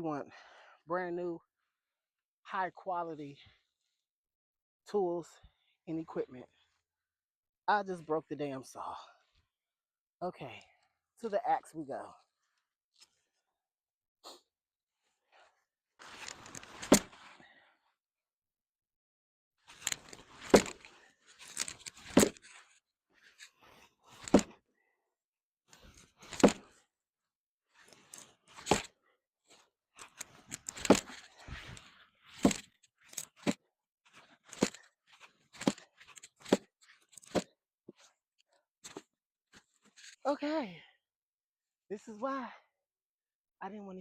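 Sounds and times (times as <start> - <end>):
wood splintering: 20.1 - 20.8
axe chopping wood: 20.5 - 20.8, 22.2 - 22.4, 24.3 - 24.5.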